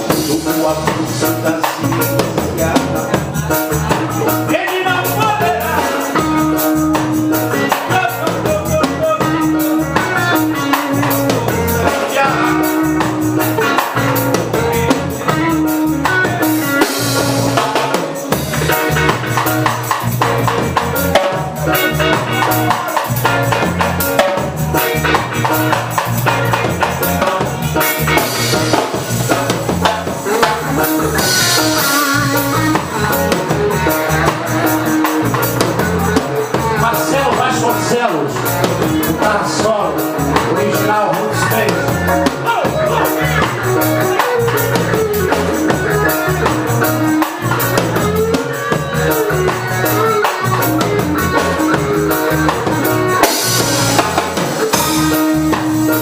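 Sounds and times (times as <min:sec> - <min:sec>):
reggae band playing: 0:00.0 - 0:56.0.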